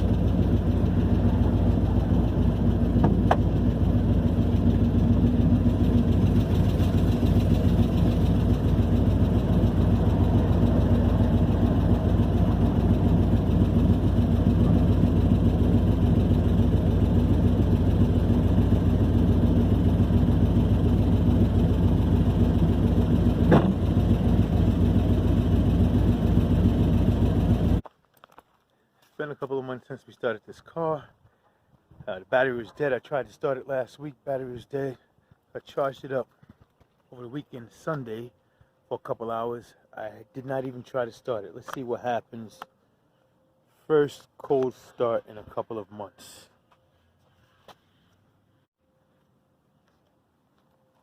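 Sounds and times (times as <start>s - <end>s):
car engine with loud exhaust: 0.0s - 27.9s.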